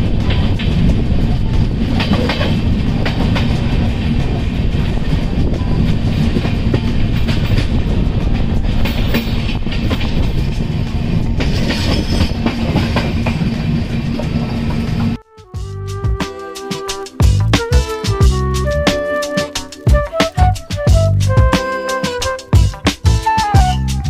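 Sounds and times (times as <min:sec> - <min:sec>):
wheels clacking over rail joints: 0:00.0 - 0:15.2
train rumbling on track: 0:00.0 - 0:16.2, 0:19.6 - 0:24.0.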